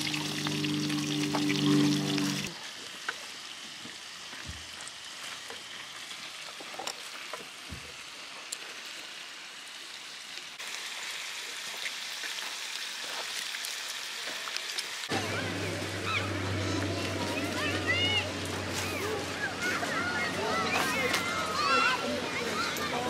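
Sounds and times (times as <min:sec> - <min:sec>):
meat sizzling on grill pan: 0:00.0 - 0:15.1.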